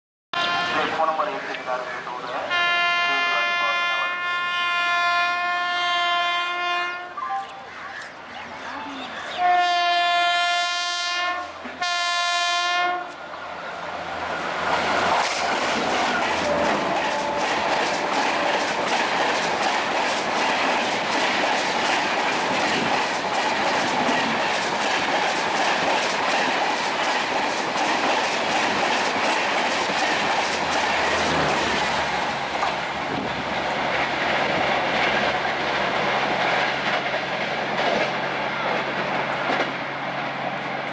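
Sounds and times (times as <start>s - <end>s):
locomotive horn blasts: 0.3s - 1.1s, 2.4s - 7.2s, 9.4s - 13.2s, 16.5s - 18.6s
train wheels clattering over rail joints: 14.9s - 32.0s.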